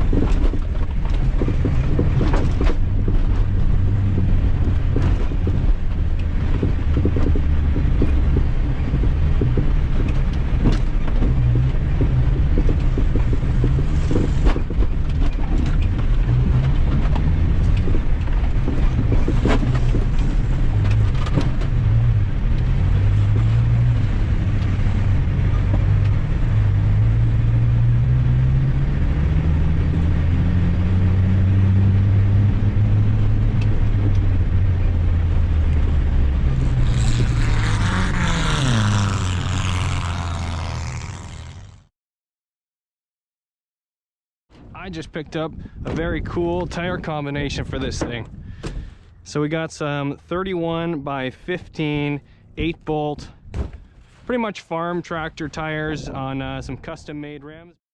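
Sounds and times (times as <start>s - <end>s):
knocks and rattles: 0.0s - 24.8s
vehicle engine revving: 0.0s - 41.9s.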